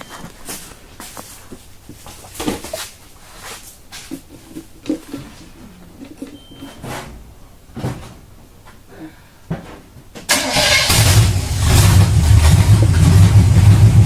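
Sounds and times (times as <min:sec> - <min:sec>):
truck engine starting: 0:10.3 - 0:14.0.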